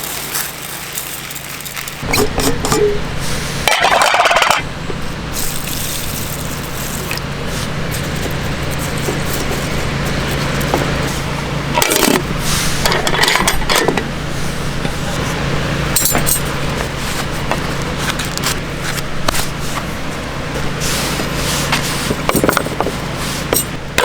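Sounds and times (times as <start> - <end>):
small hard items clinking: 0.0 - 11.2
low hum and hiss: 0.0 - 24.0.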